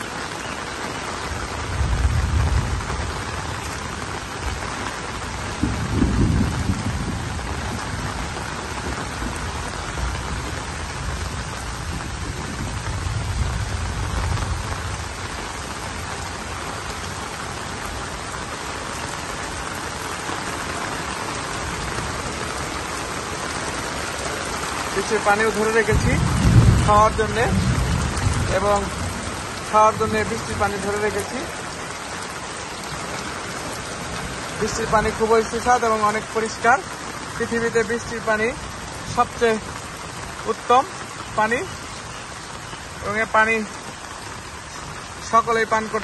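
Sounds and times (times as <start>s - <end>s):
heavy rain hissing: 0.0s - 46.0s
deep low rumbles: 26.0s - 29.4s.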